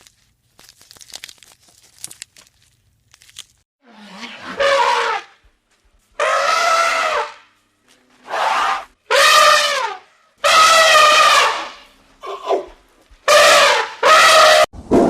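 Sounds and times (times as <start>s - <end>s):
elephant trumpeting: 3.9s - 5.4s, 6.2s - 7.5s, 8.2s - 14.7s.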